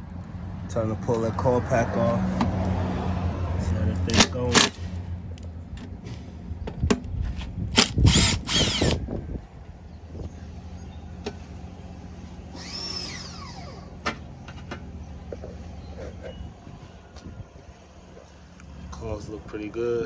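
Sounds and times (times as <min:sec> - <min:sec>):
clicks of tools handled: 0:04.1 - 0:04.8
power drill whirring: 0:07.8 - 0:09.0, 0:12.5 - 0:14.2.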